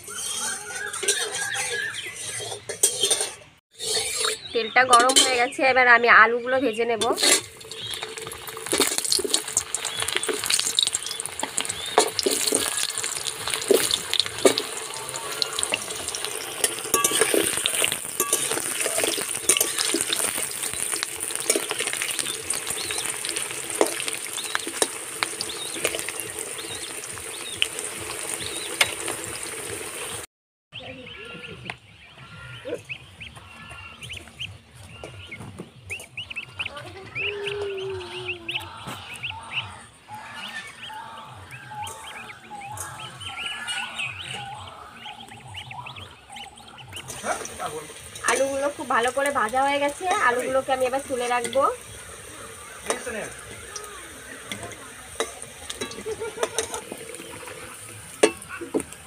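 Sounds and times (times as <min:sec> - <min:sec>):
metal spatula scraping a pan: 0:00.0 - 0:05.6, 0:07.0 - 0:25.2, 0:54.4 - 0:58.8
potatoes sizzling in oil: 0:06.7 - 0:30.3, 0:41.0 - 0:59.0
goslings peeping: 0:07.6 - 0:19.4, 0:20.1 - 0:28.8, 0:30.8 - 0:59.0.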